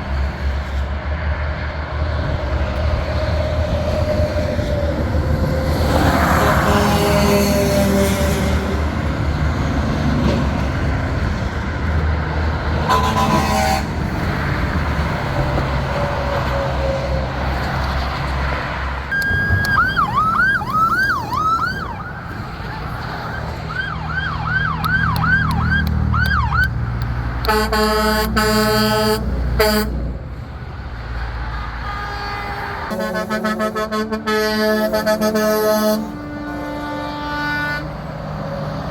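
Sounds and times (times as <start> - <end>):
trucks rumbling past: 0.0 - 38.9
truck air horn blasts: 5.8 - 8.8, 12.8 - 14.1, 27.4 - 30.2, 31.4 - 38.2
emergency siren yelping: 19.1 - 26.8.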